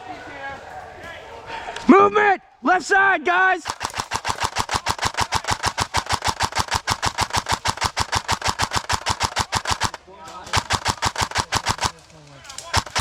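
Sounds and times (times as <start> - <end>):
airsoft rifle full-auto firing: 3.6 - 13.0.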